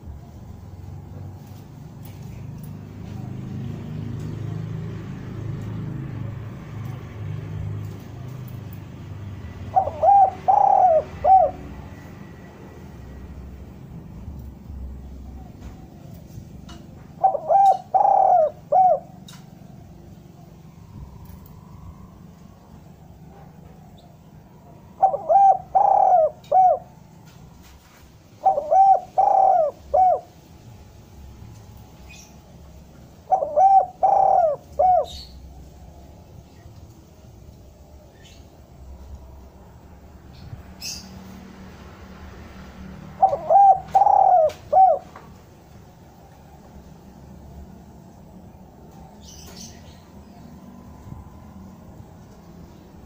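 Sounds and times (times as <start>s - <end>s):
dove cooing: 9.5s - 12.0s, 15.1s - 19.7s, 24.0s - 27.1s, 28.3s - 30.4s, 33.2s - 35.7s, 43.1s - 45.3s.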